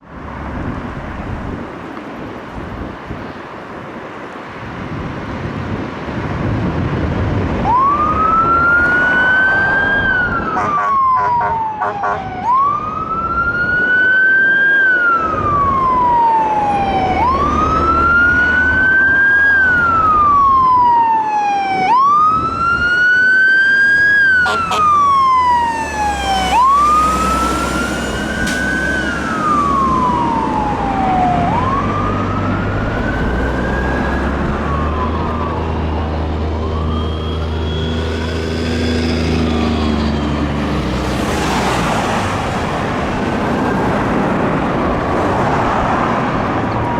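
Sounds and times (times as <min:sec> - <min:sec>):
fire engine siren wailing: 0:07.3 - 0:46.9
diesel engine rumbling: 0:23.8 - 0:46.9.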